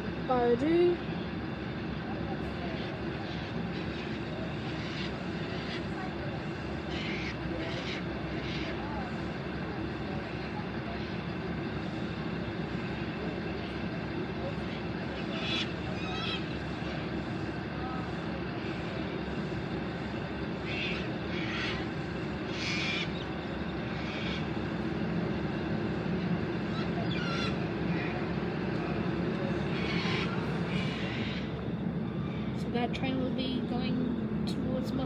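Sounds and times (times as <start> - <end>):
diesel railcar engine idling: 0.0 - 35.0.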